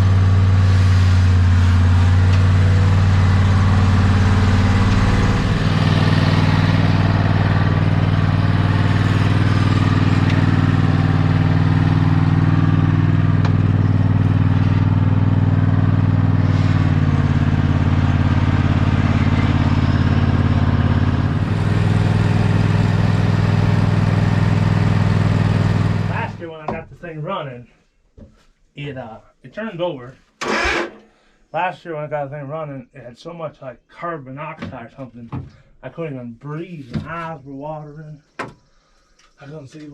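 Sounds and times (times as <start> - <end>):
riding lawn mower engine running: 0.0 - 26.4, 30.4 - 31.1.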